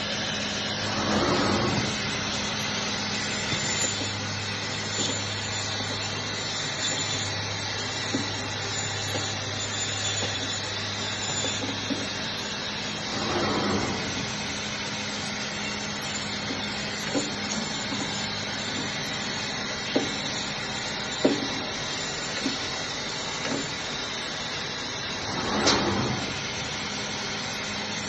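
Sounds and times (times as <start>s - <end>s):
band saw motor hum: 0.0s - 28.0s
band saw rush: 0.8s - 2.4s.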